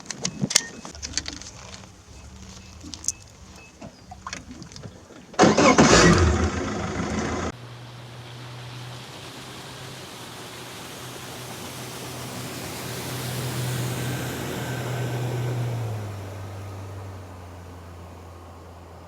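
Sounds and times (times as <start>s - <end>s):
boat motor running: 0.0s - 19.0s
wind: 0.0s - 19.0s
water hissing: 2.1s - 14.0s.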